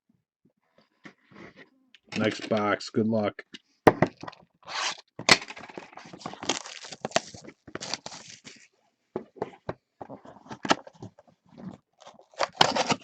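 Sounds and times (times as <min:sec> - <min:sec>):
packs crackling and crinkling: 0:04.7 - 0:09.4, 0:10.0 - 0:13.0
cardboard box tearing open: 0:06.0 - 0:08.4, 0:12.0 - 0:13.0.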